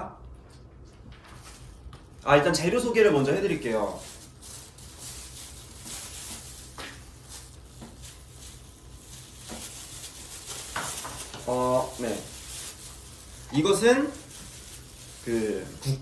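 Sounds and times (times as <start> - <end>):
handling knocks and rustles: 4.0 - 13.6.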